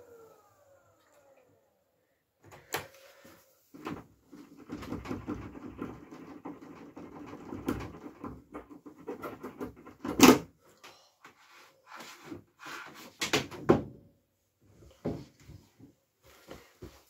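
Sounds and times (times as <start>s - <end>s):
washing machine humming and knocking: 3.8s - 10.3s.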